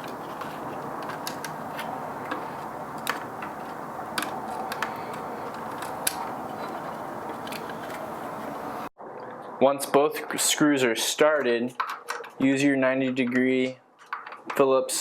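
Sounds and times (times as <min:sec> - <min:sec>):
screws and small parts clicking: 0:00.0 - 0:08.6.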